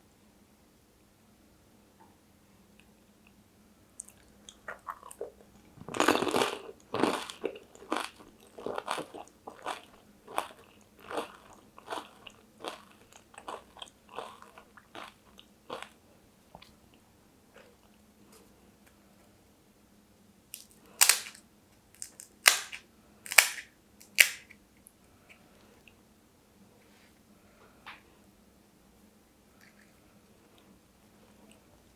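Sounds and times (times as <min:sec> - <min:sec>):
crunchy food chewing: 0:04.0 - 0:16.0, 0:22.0 - 0:24.5
loud crisp crunches: 0:20.6 - 0:21.4, 0:22.0 - 0:24.5.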